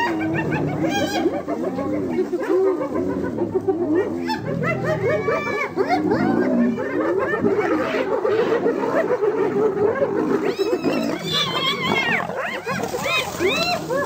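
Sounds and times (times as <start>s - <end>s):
hyenas growling: 0.0s - 14.0s
hyenas yelping: 0.0s - 14.0s.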